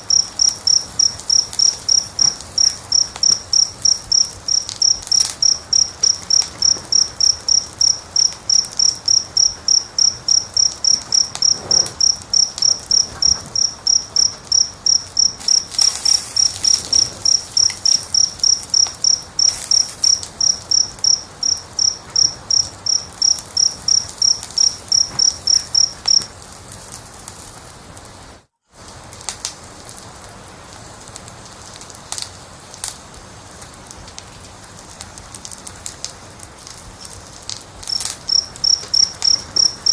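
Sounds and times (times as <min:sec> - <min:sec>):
cricket chirping: 0:00.0 - 0:26.3, 0:37.8 - 0:39.9
wood fire crackling: 0:00.0 - 0:39.9.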